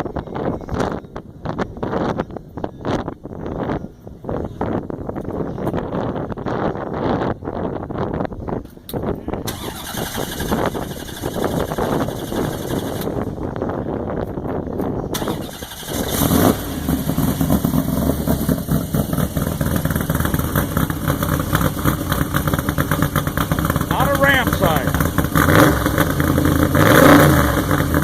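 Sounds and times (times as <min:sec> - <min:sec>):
car engine starting and idling: 0:09.4 - 0:13.5, 0:15.1 - 0:28.0.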